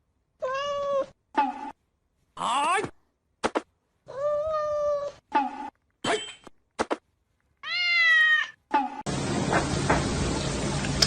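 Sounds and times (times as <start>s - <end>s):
cat meowing: 0.4s - 1.2s, 4.1s - 5.2s, 7.6s - 8.6s.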